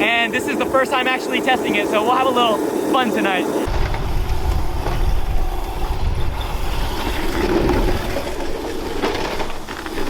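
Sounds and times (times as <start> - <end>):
kart wheels rumbling on track: 0.0 - 10.0
wind buffeting microphone: 3.6 - 9.7.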